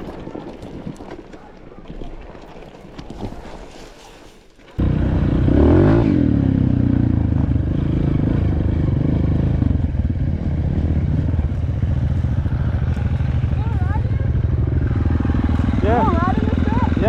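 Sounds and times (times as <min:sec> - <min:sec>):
dirt bike engine revving: 0:04.8 - 0:17.0.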